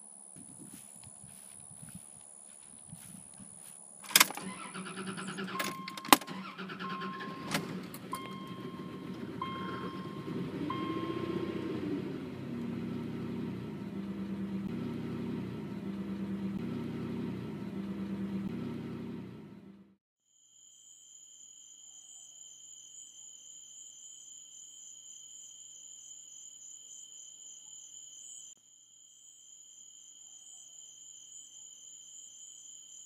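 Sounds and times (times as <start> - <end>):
car beeping chime: 4.1 - 15.6
car engine running: 4.1 - 20.0.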